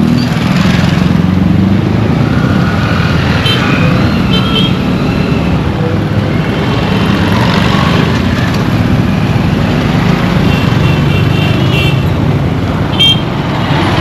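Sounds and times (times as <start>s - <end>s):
road traffic rumble: 0.0s - 14.0s
vehicle horn honking: 12.9s - 13.3s.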